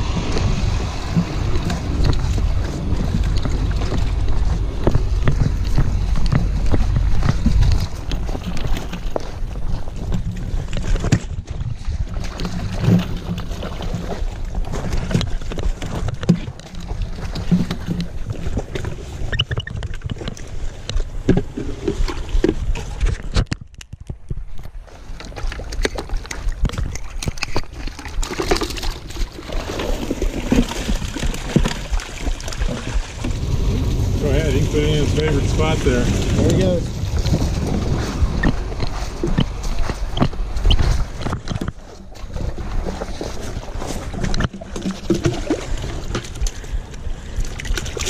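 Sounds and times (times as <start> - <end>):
low rumble: 0.0 - 16.1, 27.9 - 48.0
water sloshing in a bucket: 0.0 - 48.0
water pouring into stream: 25.3 - 41.3.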